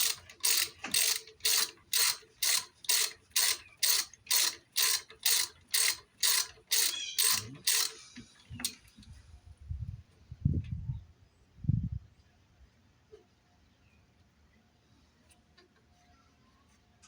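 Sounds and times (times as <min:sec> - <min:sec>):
ratchet wrench clicking: 0:00.0 - 0:08.0.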